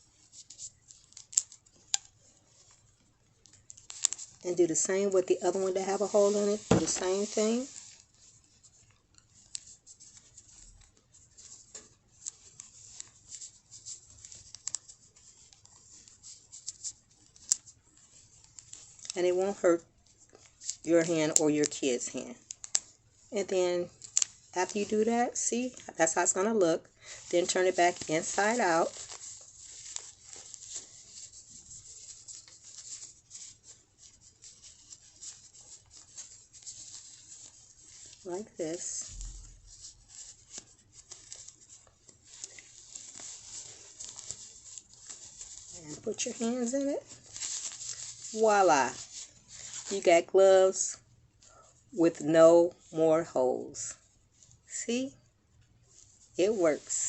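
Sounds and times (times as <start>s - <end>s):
glove rustling: 0.0s - 19.2s, 27.0s - 50.1s.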